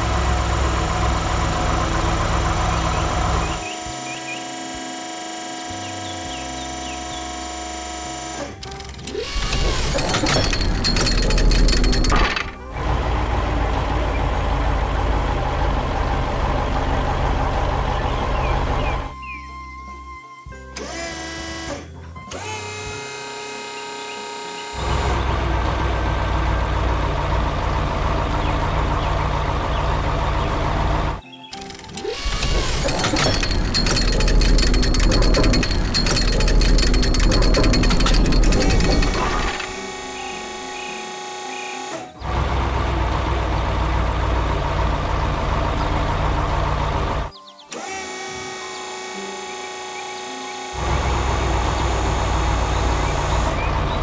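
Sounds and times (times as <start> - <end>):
loud low engine rumble: 0.0 - 3.8, 9.3 - 19.2, 24.8 - 31.2, 42.2 - 47.4, 50.8 - 54.0.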